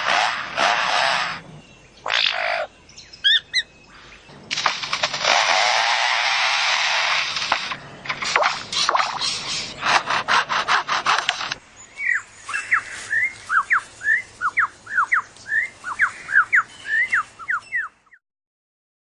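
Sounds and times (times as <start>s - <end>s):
bird mimicking a chainsaw buzz: 0.0s - 2.7s, 4.5s - 11.6s
swooping whistled bird notes: 11.8s - 18.2s.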